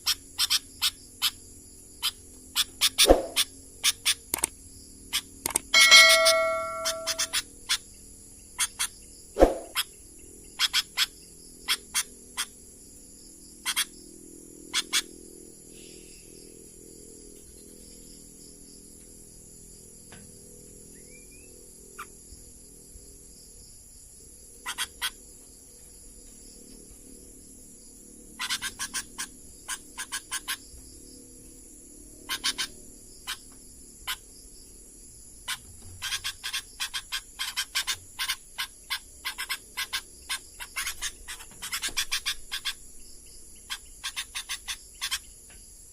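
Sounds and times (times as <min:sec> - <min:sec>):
high-pitched insect drone: 0:00.0 - 0:45.9
animal chirps and rattling runs: 0:35.5 - 0:42.8.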